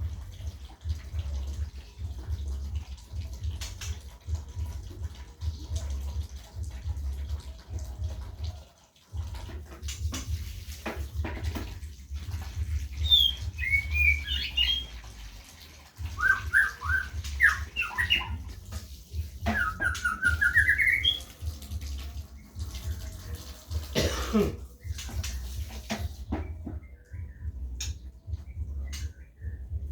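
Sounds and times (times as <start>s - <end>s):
birds chirping and calling: 9.3s - 23.9s, 24.7s - 29.9s.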